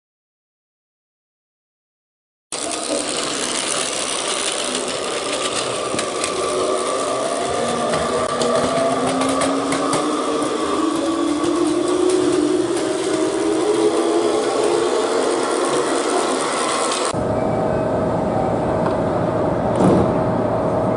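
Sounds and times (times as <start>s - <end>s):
electric train motor whining: 2.5s - 17.4s.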